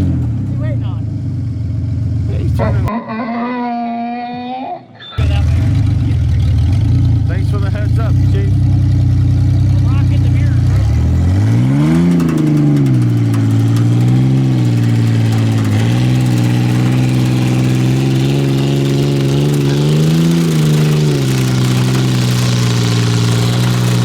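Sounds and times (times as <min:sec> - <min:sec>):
engine revving hard: 0:05.2 - 0:24.0.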